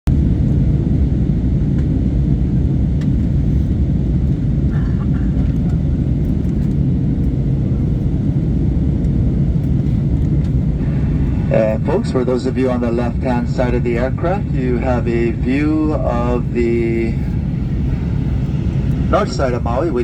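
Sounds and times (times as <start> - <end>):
faint steady hum: 0.1 - 20.0
jet engines droning in cabin: 0.1 - 20.0
rushing air: 6.0 - 20.0.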